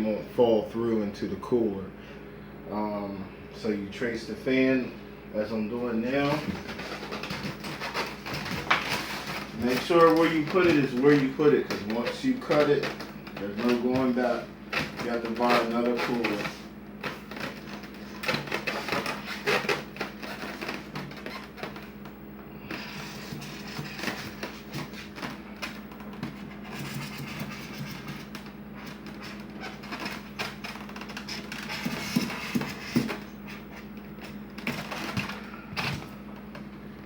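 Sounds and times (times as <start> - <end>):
steady low hum: 0.0 - 37.0
marker scratching and squeaking: 26.6 - 28.3.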